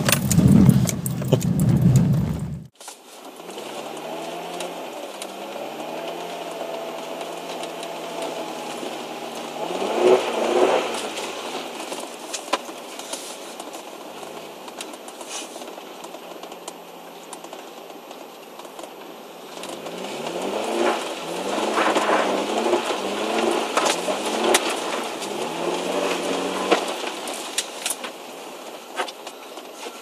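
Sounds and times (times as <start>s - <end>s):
car engine revving: 0.0s - 12.8s, 19.3s - 28.7s
tyres hissing on snow: 2.8s - 16.0s, 19.2s - 30.0s.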